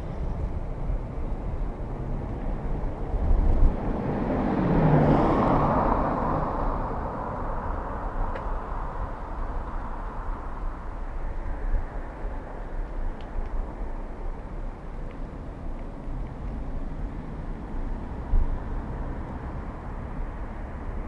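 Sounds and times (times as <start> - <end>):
wind rumble on microphone: 0.0 - 21.0
car passing by: 1.8 - 11.1, 16.3 - 21.0.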